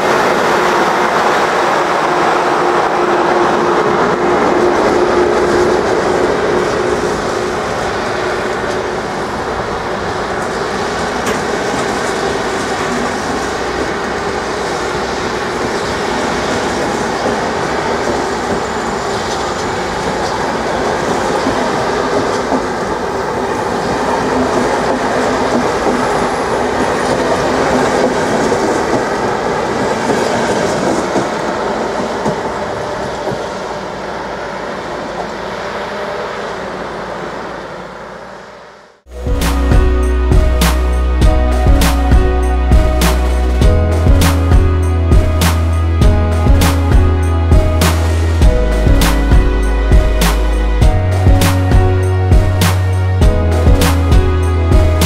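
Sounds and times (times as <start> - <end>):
train coaches rolling past: 0.0 - 55.0.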